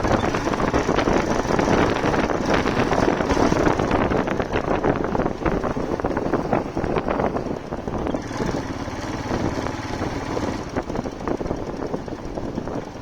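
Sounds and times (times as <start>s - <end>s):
motorcycle engine: 0.0s - 13.0s
road noise: 0.0s - 13.0s
wind buffeting microphone: 0.0s - 13.0s.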